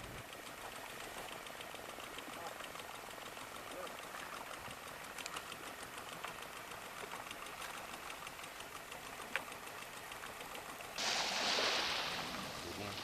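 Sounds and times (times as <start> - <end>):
small engine ticking: 0.0 - 11.0.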